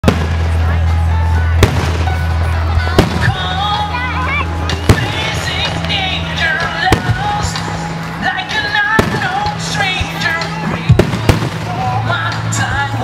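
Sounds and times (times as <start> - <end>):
fireworks bursting in sharp bangs: 0.0 - 0.8, 1.6 - 3.8, 4.7 - 7.7, 8.9 - 9.9, 10.9 - 12.0
music with bass line: 0.0 - 13.0
person singing: 2.6 - 4.4, 5.0 - 13.0.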